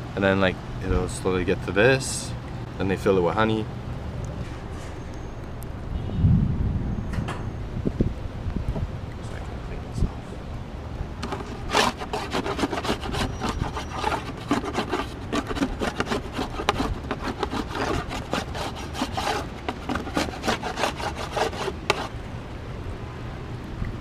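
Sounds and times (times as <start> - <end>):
scraping beeswax off wood: 11.2 - 22.1.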